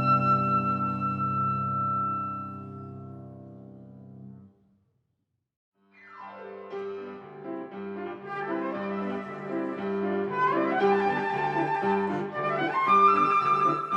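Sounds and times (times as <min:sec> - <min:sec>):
flute melody: 0:00.0 - 0:03.2, 0:08.2 - 0:13.9
piano chords: 0:00.0 - 0:04.4, 0:06.2 - 0:13.9.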